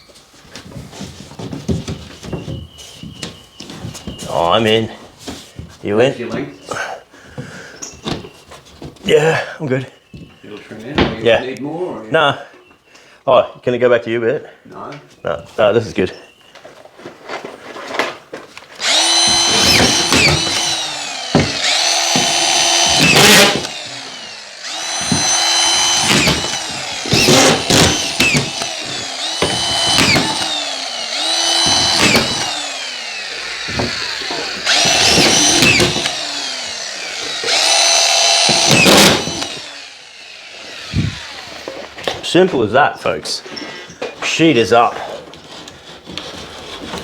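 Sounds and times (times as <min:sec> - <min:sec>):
power drill driving screws: 0:18.8 - 0:42.1.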